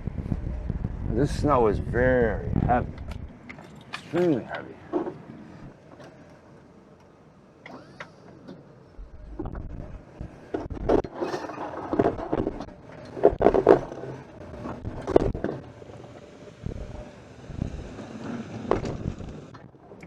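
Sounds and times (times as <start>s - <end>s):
vehicle engine rumbling: 0.0s - 20.0s
plow clunking and scraping snow: 7.6s - 19.6s.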